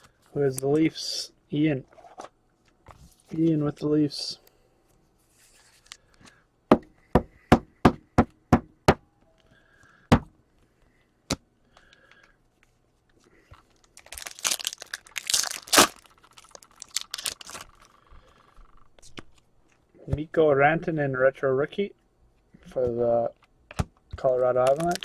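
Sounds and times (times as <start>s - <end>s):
foil wrapper crinkling and tearing: 13.7s - 18.0s, 24.5s - 25.0s.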